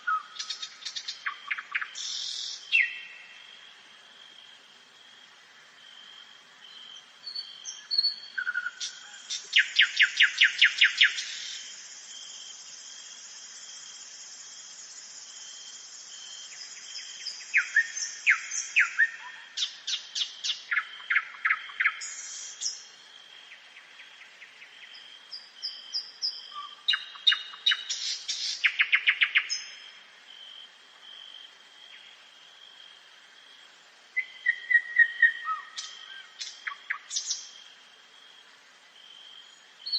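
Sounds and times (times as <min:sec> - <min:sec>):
nightingale singing: 0:00.0 - 0:03.4, 0:06.6 - 0:30.0, 0:34.2 - 0:37.7, 0:39.1 - 0:39.9.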